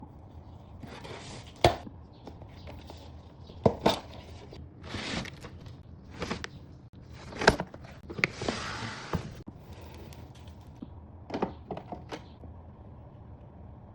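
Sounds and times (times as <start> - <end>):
cardboard and wrapping rustling: 2.5 - 9.5.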